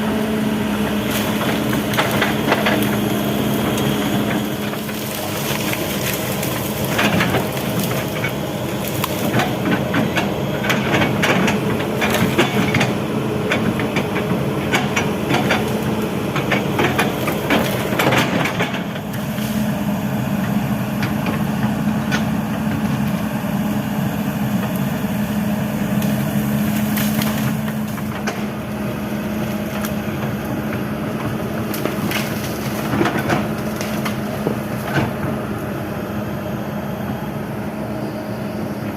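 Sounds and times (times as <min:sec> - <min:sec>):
excavator diesel engine running: 0:00.0 - 0:38.9
branches cracking and snapping: 0:00.9 - 0:13.0, 0:13.6 - 0:19.8, 0:24.6 - 0:35.7.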